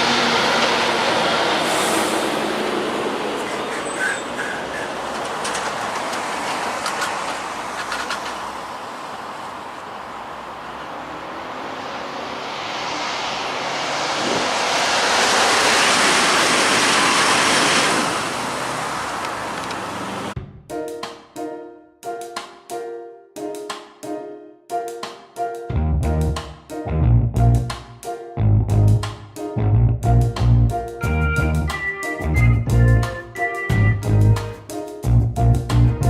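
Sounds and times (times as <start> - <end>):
car road noise: 0.0 - 20.4
traffic passing close by: 0.0 - 20.4
music: 20.4 - 36.0.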